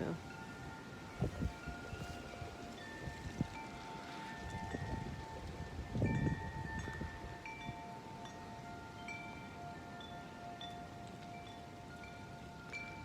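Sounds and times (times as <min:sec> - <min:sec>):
wind rumble on microphone: 0:00.0 - 0:08.4
wind chimes ringing: 0:00.0 - 0:13.0.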